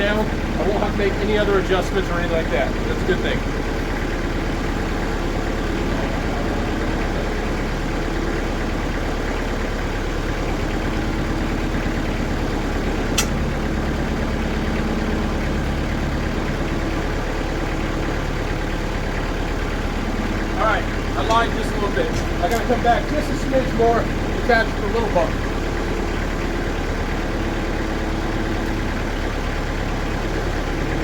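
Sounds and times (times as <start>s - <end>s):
diesel engine running steadily: 0.0s - 31.0s
sharp click: 13.2s - 13.4s.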